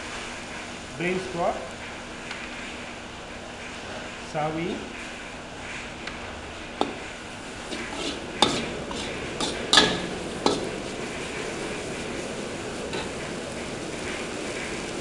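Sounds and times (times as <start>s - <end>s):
food sizzling in a wok: 0.0s - 15.0s
spatula scraping and knocking wok: 5.9s - 15.0s.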